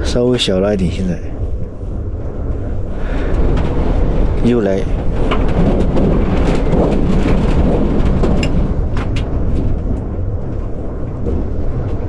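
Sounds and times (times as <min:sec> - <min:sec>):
wind gusts rumbling: 0:00.0 - 0:12.0
vehicle knocking and rattling: 0:05.0 - 0:10.4.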